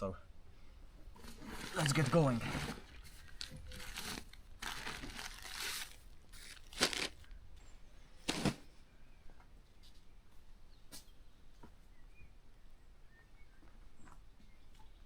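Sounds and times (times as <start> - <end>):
camping gear rustling and crinkling: 1.0 - 8.9
short rips or swishes: 1.2 - 7.2, 8.3 - 8.6.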